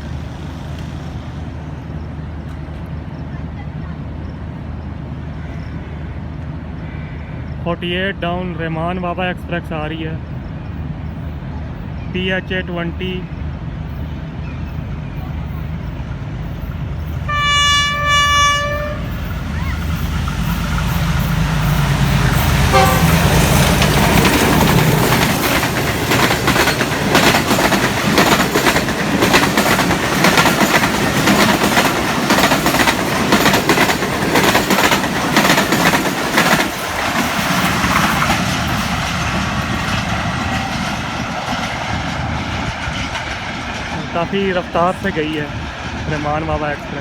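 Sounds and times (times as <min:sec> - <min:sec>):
locomotive engine droning: 0:00.0 - 0:47.0
train wheels clicking over rail joints: 0:14.5 - 0:47.0
train horn: 0:17.3 - 0:19.8, 0:21.6 - 0:23.6.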